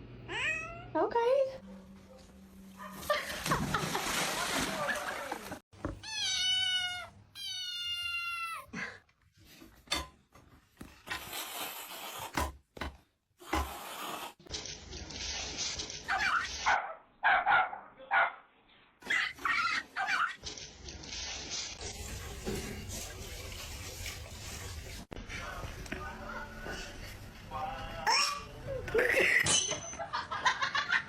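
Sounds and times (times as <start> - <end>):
cat meowing: 0.3 - 0.9, 6.0 - 8.7.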